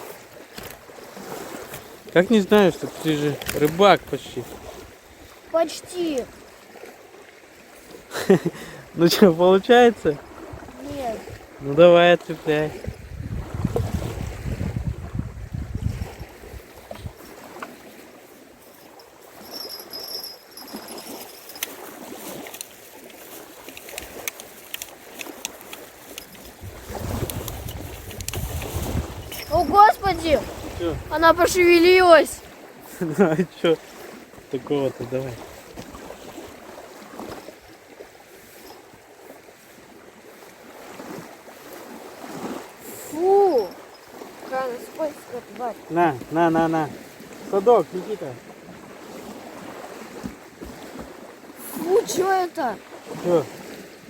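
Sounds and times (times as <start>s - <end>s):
small waves lapping: 0.0s - 54.0s
wind blowing over microphone: 12.4s - 17.4s, 26.2s - 32.5s
faint high steady tone: 18.9s - 21.7s, 43.1s - 45.3s
light handling clicks: 23.7s - 26.6s.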